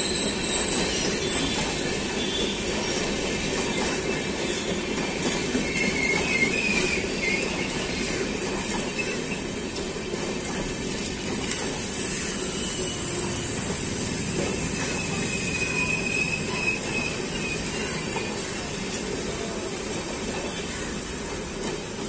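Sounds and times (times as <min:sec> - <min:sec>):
faint high squeal: 0:00.0 - 0:03.0, 0:12.3 - 0:13.5, 0:14.7 - 0:18.1
wheels rumbling on rail: 0:00.0 - 0:22.0.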